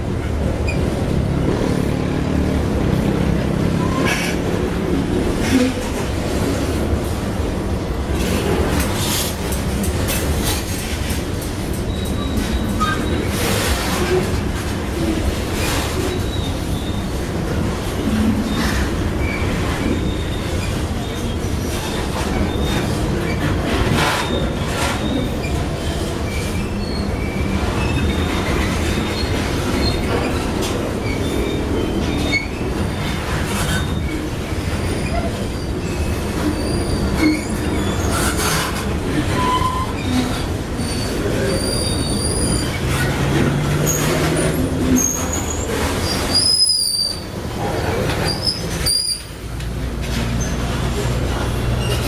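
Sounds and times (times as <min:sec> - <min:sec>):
freight train rumble and clatter: 0:00.0 - 0:52.0
high-pitched wheel squeals: 0:43.8 - 0:47.3.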